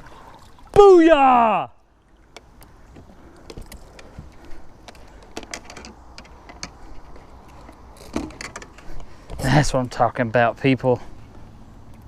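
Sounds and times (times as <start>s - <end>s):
fishing gear clicking and rattling: 2.3s - 9.8s.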